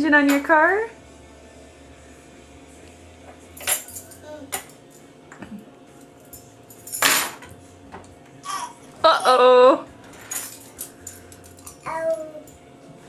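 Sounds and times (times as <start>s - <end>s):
clattering rattle: 10.1s - 11.8s.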